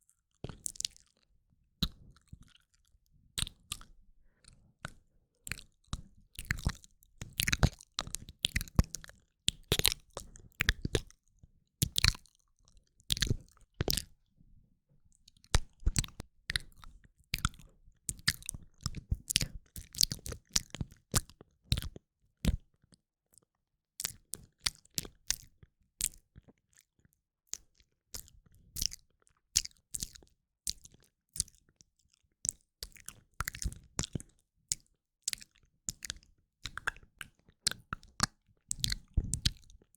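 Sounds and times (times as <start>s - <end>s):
wet mouth clicks and smacks: 1.8s - 2.7s, 3.4s - 11.1s, 11.8s - 12.4s, 13.1s - 14.1s, 15.5s - 22.6s, 24.0s - 26.2s, 29.6s - 31.6s, 32.5s - 39.8s.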